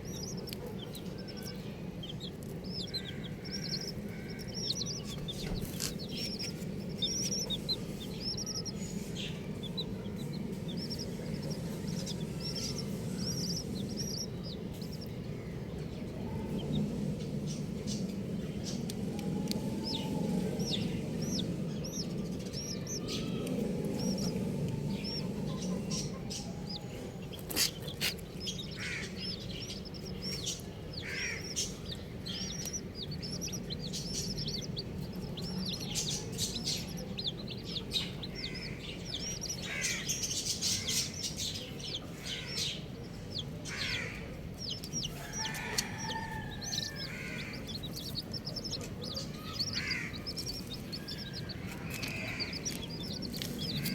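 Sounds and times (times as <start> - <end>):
baby chicks peeping: 0.0 - 53.9.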